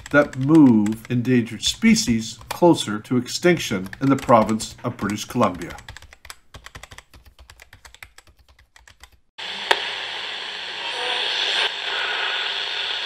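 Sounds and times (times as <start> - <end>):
computer keyboard typing: 0.0 - 2.7, 3.3 - 9.3
radio static hiss: 9.4 - 13.0.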